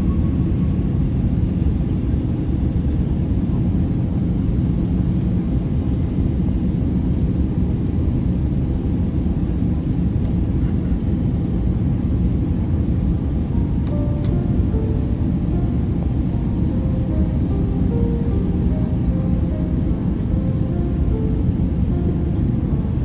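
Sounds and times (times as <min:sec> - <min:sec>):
airliner engines rumbling: 0:00.0 - 0:23.0.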